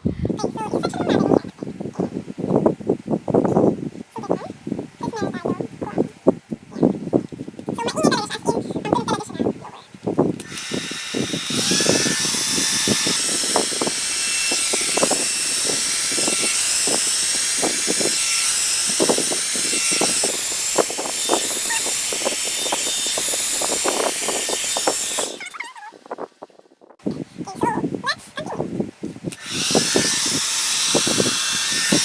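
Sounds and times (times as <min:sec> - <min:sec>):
hot-air brush blowing: 0:10.4 - 0:25.6, 0:29.3 - 0:32.0.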